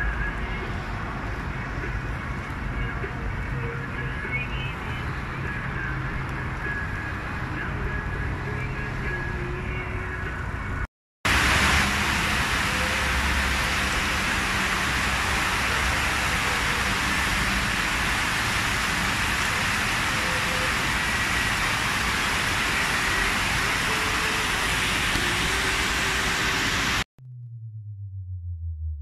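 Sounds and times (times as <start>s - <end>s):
heavy rain on a wet road: 11.3s - 27.0s.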